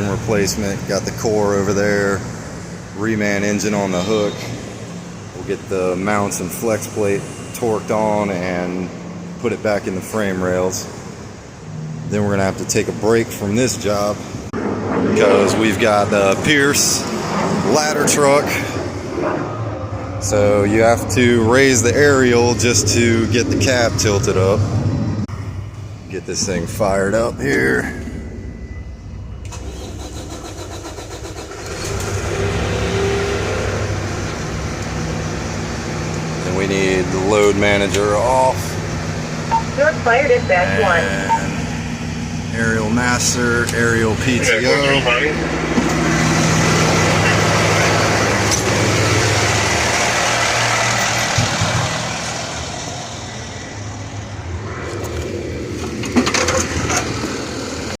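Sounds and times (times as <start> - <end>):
diesel engine idling: 19.9 - 54.6.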